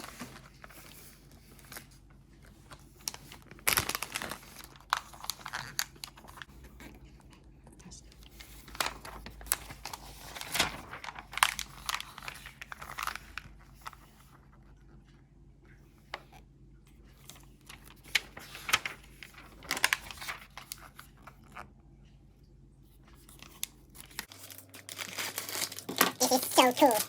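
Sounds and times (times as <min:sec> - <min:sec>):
packaging crinkling and tearing: 0:02.7 - 0:06.5, 0:08.7 - 0:14.0, 0:17.7 - 0:20.9, 0:23.6 - 0:27.0.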